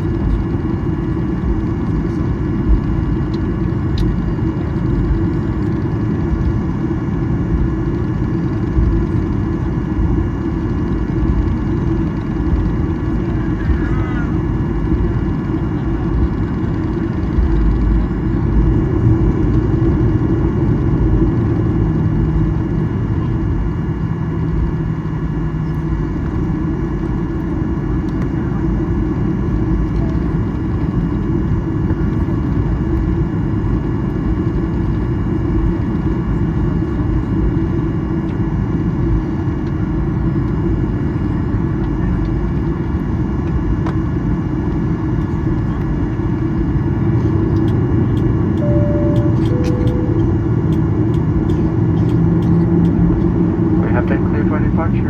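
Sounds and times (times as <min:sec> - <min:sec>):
jet engines idling: 0:00.0 - 0:55.0
faint whining tones: 0:48.6 - 0:52.7.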